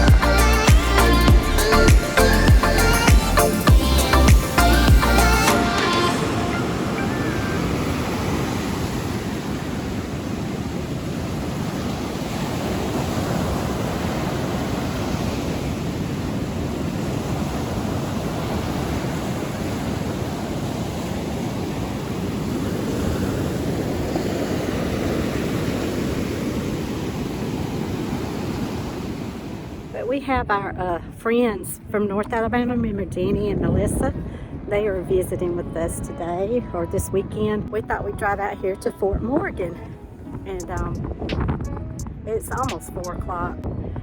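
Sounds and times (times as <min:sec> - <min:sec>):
ocean surf washing in: 0:00.0 - 0:30.6
wind buffeting microphone: 0:06.1 - 0:44.0.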